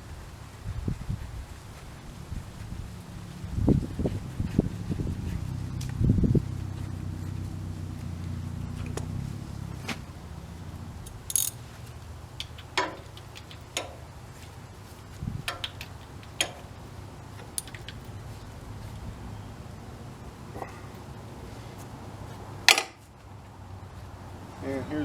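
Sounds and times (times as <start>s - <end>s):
low rumble: 0.8s - 12.0s
metal tools clicking and clinking: 11.0s - 11.7s, 12.4s - 14.1s, 15.5s - 16.8s, 17.4s - 18.2s
bright metal jingle: 11.1s - 11.6s.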